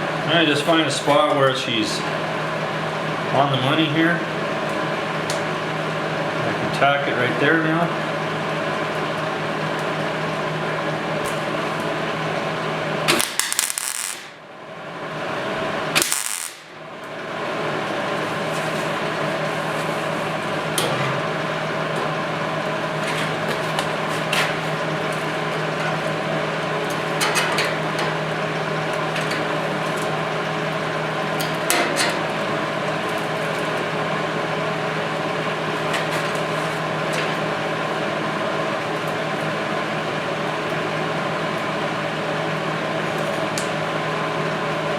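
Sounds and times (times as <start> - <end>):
machine hum: 0.0 - 31.5
short sharp bursts: 13.2 - 14.4, 16.0 - 16.8.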